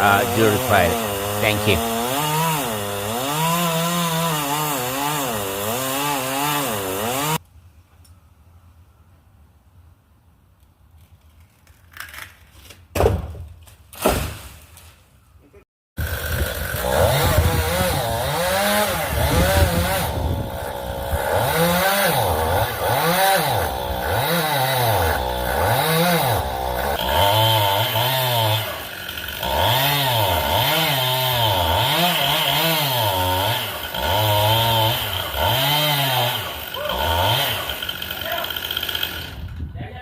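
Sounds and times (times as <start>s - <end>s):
chainsaw revving: 0.0s - 7.4s, 16.0s - 39.6s.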